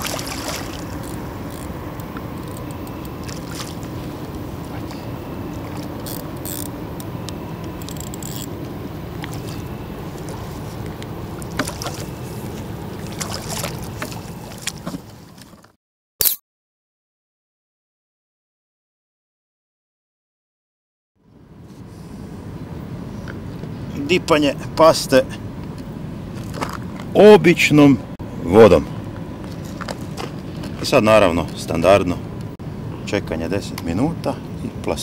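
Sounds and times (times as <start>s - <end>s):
fish splashing in water: 0.0s - 1.5s, 3.2s - 6.0s, 11.3s - 15.4s
sharp click: 16.2s - 16.4s.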